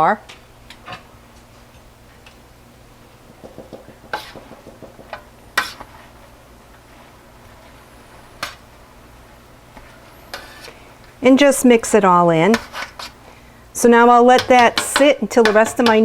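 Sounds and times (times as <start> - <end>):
utensil tapping on cooking pot: 3.3 - 5.8, 14.3 - 16.0.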